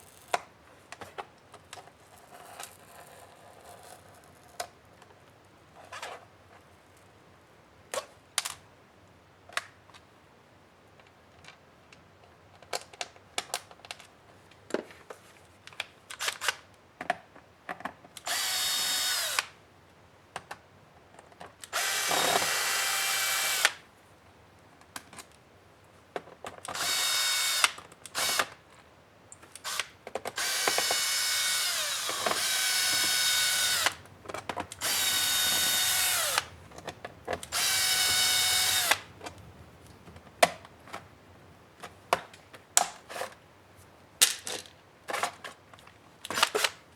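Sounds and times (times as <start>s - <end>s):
electric screwdriver running: 18.2s - 19.5s, 21.7s - 23.8s, 26.7s - 28.5s, 29.6s - 34.1s, 34.7s - 36.8s, 37.4s - 39.1s
handling clicks and taps: 32.1s - 41.1s.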